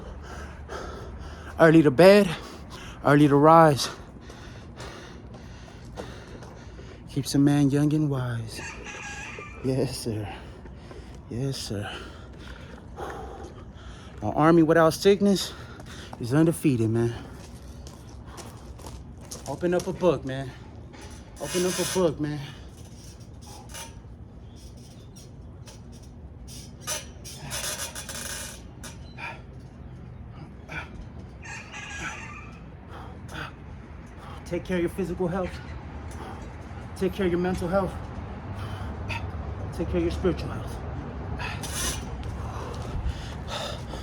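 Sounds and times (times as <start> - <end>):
low steady hum: 0.0 - 8.7, 9.6 - 31.4
fowl calling: 8.6 - 10.5, 31.4 - 33.1
man breathing out through nose: 41.4 - 44.0.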